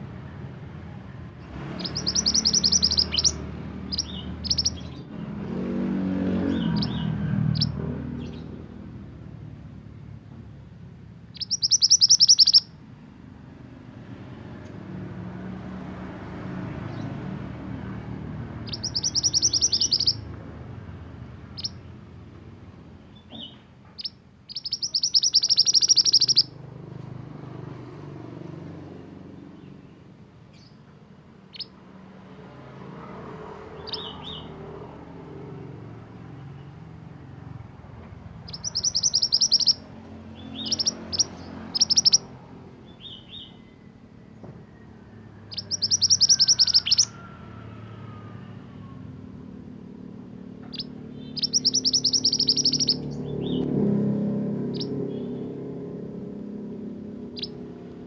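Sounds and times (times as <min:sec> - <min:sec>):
songbird trilling: 0:01.5 - 0:05.1, 0:06.5 - 0:08.5, 0:11.3 - 0:12.7, 0:18.5 - 0:22.0, 0:23.1 - 0:26.6, 0:31.5 - 0:31.8, 0:33.8 - 0:34.5, 0:38.4 - 0:43.9, 0:45.4 - 0:47.3, 0:50.6 - 0:53.7, 0:54.7 - 0:55.5, 0:57.2 - 0:57.7.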